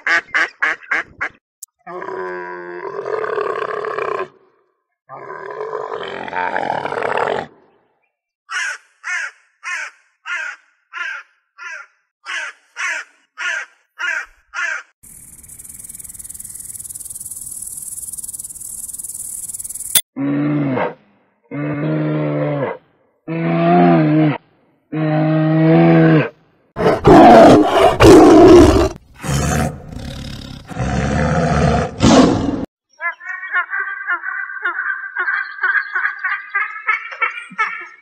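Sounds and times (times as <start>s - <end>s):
crow cawing: 8.5s - 14.9s
grasshopper stridulating: 15.0s - 20.0s.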